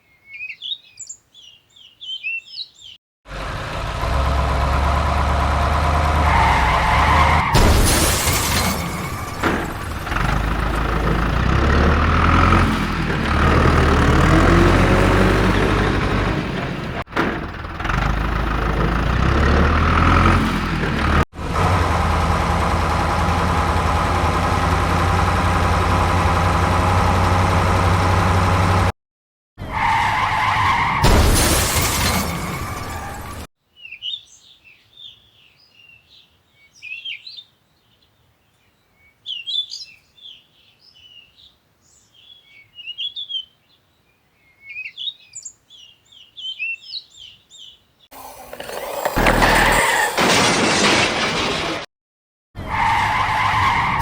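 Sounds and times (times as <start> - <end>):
birds chirping: 0.0 - 3.0, 33.8 - 48.3
vehicle engine running: 3.3 - 7.0, 9.2 - 28.9.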